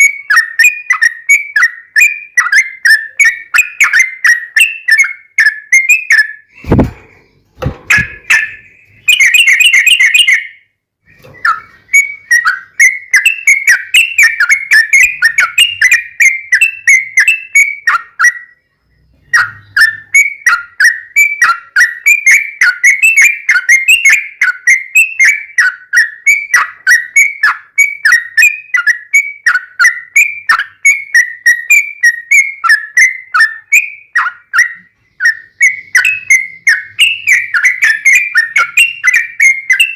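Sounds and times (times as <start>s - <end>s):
bird chattering song: 0.0s - 39.9s
dull thumps: 6.6s - 8.4s.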